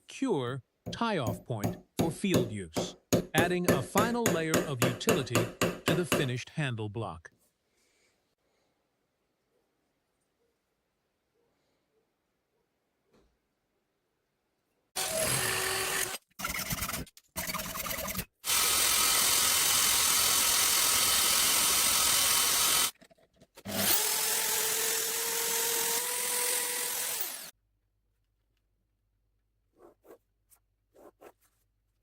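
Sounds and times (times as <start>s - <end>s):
electric power drill running: 15.0s - 16.2s, 18.5s - 22.9s, 23.7s - 27.5s.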